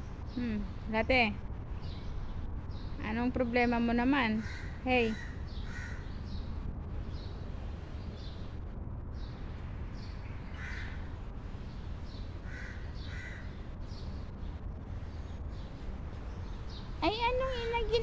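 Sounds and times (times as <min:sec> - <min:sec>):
steady low rumble: 0:00.0 - 0:18.0
birds calling: 0:04.2 - 0:06.5, 0:10.0 - 0:18.0.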